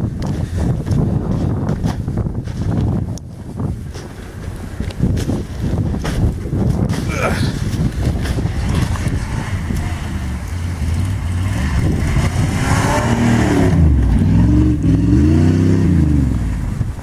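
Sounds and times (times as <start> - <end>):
truck engine revving in snow: 6.9 - 17.0.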